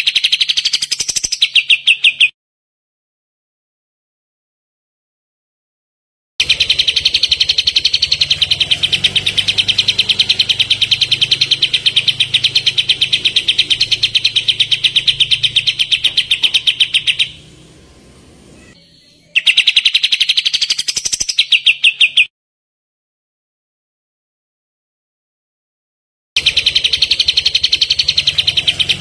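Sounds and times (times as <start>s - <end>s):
bird rapid high call: 0.0s - 2.3s, 6.4s - 22.3s, 26.4s - 29.0s.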